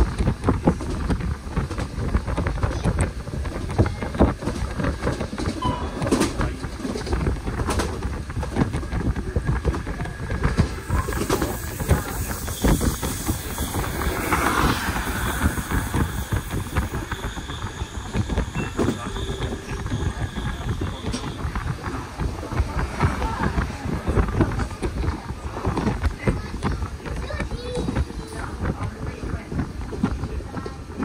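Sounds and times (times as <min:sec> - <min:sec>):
train rumble: 0:00.0 - 0:31.0
wheels knocking on rails: 0:00.0 - 0:31.0.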